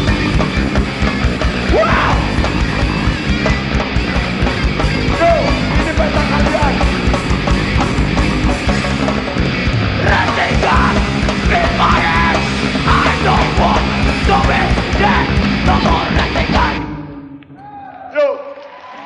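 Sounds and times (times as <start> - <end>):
punk band playing live: 0.0 - 17.4
shouted vocals: 1.6 - 2.5, 10.0 - 16.9.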